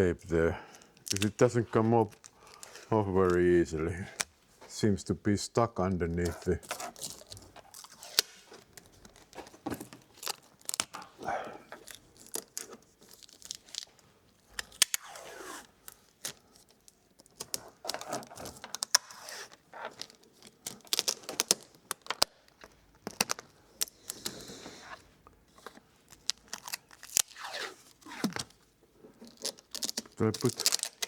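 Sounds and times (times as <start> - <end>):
tape clicks and crinkling: 0.3 - 4.4, 6.1 - 31.0
adhesive tape ripping off roll: 6.2 - 8.8, 14.6 - 16.4, 26.1 - 28.6.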